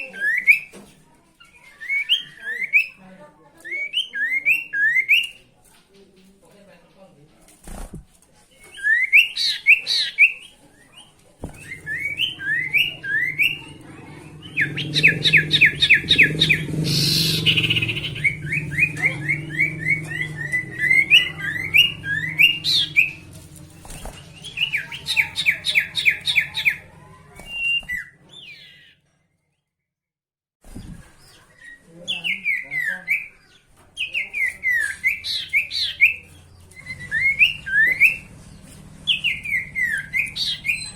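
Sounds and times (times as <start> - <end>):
bird chirps and trills: 8.6 - 29.2, 30.8 - 40.9.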